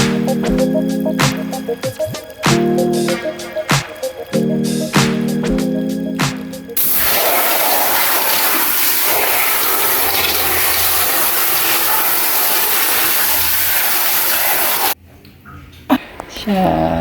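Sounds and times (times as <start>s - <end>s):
water gushing from a tap: 6.8s - 15.0s.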